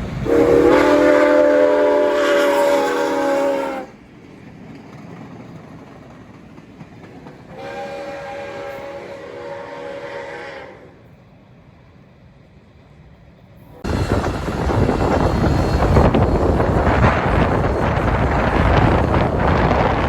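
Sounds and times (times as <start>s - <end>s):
passing train running noise: 0.0s - 20.0s
train chime horn blasts: 0.2s - 4.0s, 7.5s - 11.0s.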